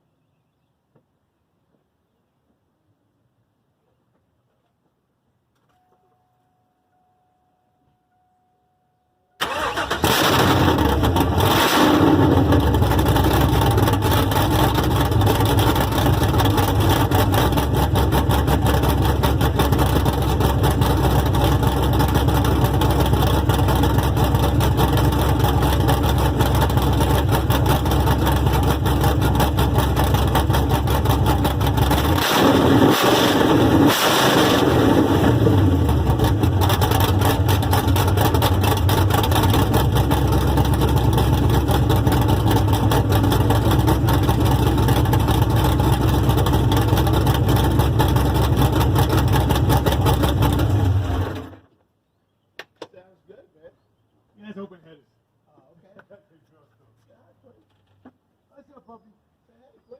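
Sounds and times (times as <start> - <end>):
loud car engine idling choppily: 12.1 - 32.2, 35.2 - 51.5.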